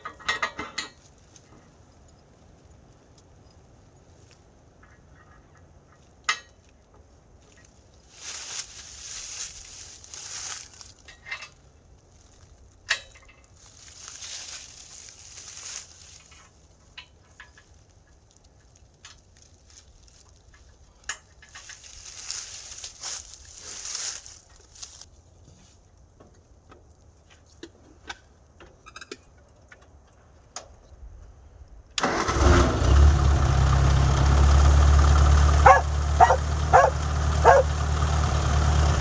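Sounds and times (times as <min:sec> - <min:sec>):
scraping and crunching in dirt: 0:07.3 - 0:26.0.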